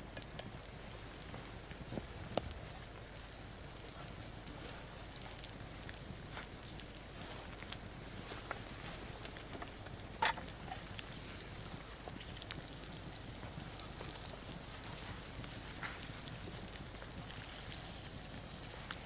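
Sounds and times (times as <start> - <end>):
crackles and pops: 0.0 - 19.0
garlic sizzling in oil: 0.0 - 19.0.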